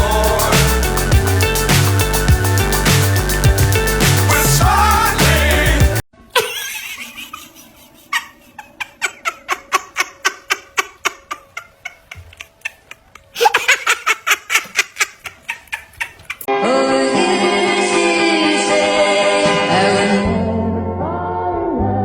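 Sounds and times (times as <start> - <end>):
person laughing: 6.3 - 16.5.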